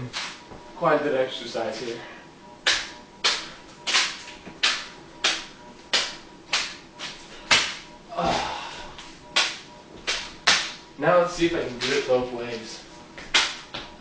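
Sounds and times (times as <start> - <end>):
hand slapping snack pouch: 13.2 - 13.6.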